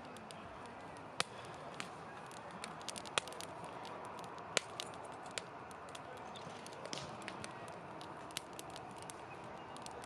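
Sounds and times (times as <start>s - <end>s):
campfire crackling and popping: 0.0s - 10.0s.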